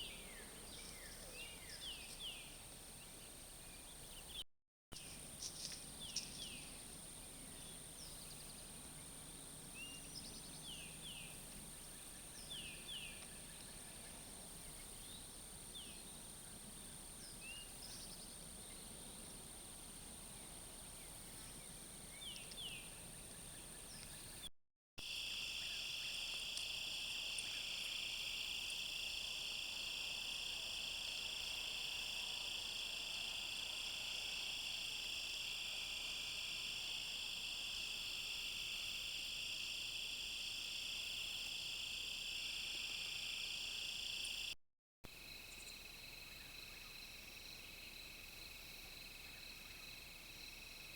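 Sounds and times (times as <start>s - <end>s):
dense insect chorus trilling: 25.0s - 50.9s
falling insect chirps: 33.6s - 44.6s.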